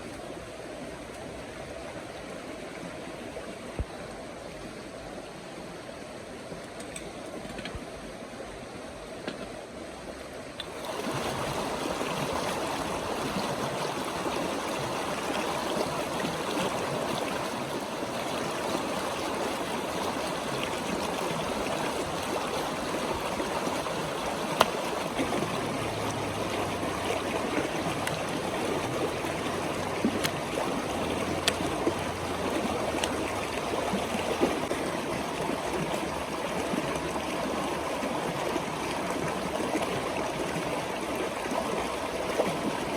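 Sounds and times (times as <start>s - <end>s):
river water rushing: 10.6s - 42.9s.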